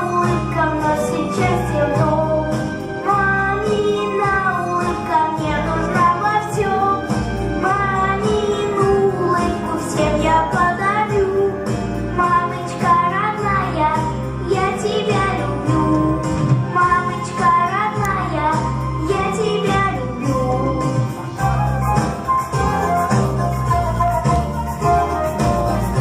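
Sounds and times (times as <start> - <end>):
young children singing: 0.0 - 11.6, 12.2 - 21.3
backing track with steady beat: 0.0 - 26.0.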